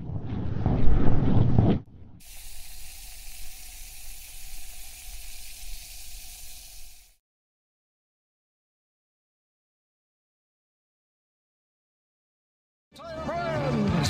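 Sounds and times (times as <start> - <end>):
steady high hiss: 2.2 - 7.2.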